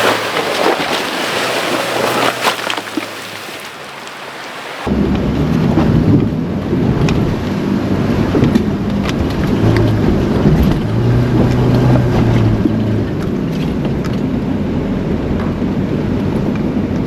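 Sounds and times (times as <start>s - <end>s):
water rushing and splashing: 0.0s - 17.0s
vehicle engine under load: 4.9s - 17.0s.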